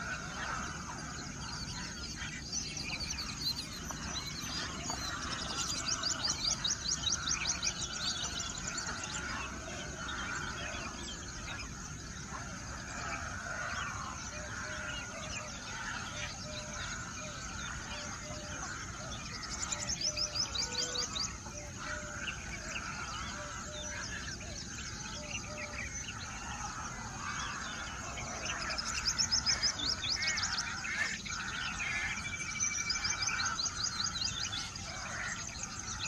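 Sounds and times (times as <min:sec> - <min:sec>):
birds chirping and singing: 0:00.0 - 0:36.0.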